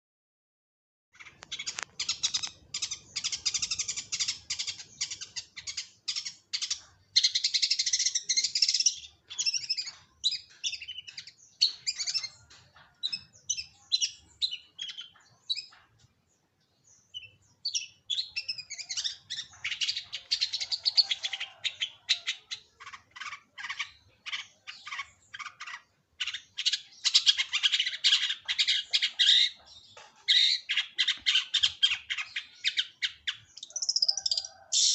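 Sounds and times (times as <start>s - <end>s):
bird harsh chattering song: 1.2s - 34.9s.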